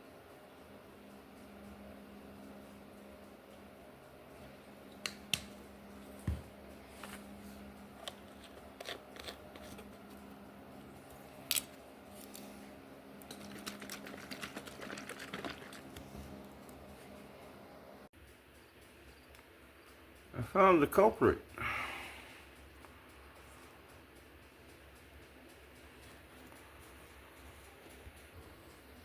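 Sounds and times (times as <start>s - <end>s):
faint steady hum: 0.0s - 29.0s
objects being handled: 6.0s - 10.4s
small clicks and rustles: 13.2s - 17.2s.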